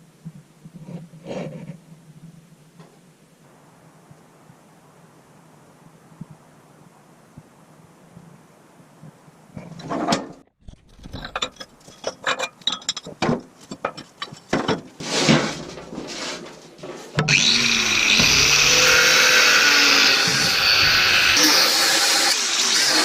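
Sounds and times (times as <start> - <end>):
irregular knocks and scrapes: 0.3 - 3.0, 9.5 - 17.3
power tool running loudly: 17.3 - 23.0.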